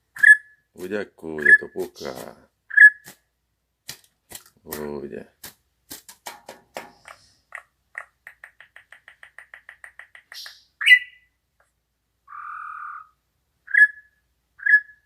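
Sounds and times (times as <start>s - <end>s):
songbird trilling and chirping: 1.4s - 3.1s, 9.2s - 11.3s, 13.7s - 15.0s.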